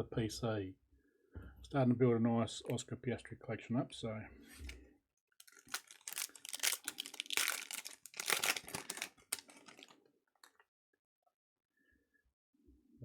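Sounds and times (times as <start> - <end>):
foil wrapper crinkling: 5.4 - 10.6.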